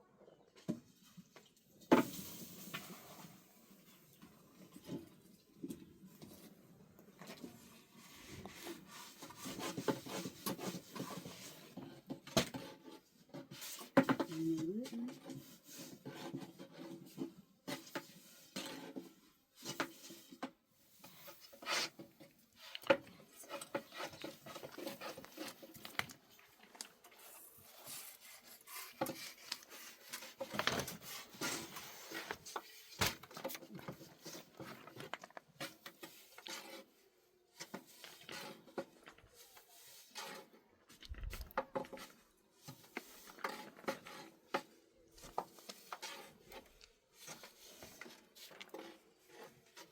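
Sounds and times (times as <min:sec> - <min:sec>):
objects knocking and scraping: 0:28.8 - 0:49.9.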